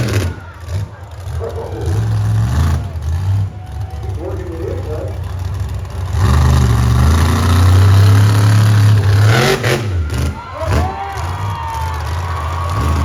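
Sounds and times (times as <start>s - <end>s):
monster truck engine revving: 0.0s - 13.0s.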